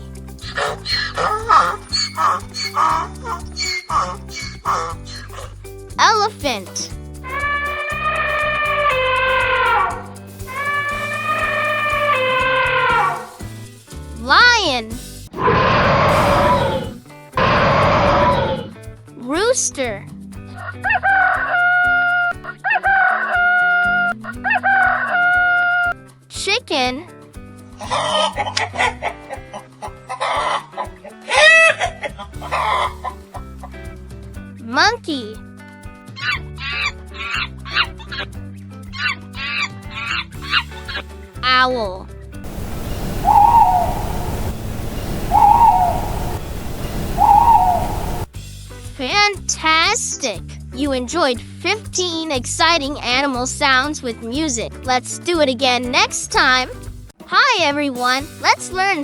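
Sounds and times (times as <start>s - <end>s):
cheerful music with steady beat: 0.0s - 15.4s, 18.7s - 42.8s, 48.2s - 59.0s
owl hooting: 0.4s - 5.5s, 7.3s - 13.4s, 15.4s - 18.7s, 32.4s - 33.2s, 42.5s - 48.3s
background hiss and rumble: 42.4s - 48.3s
rooster crowing: 42.5s - 48.3s.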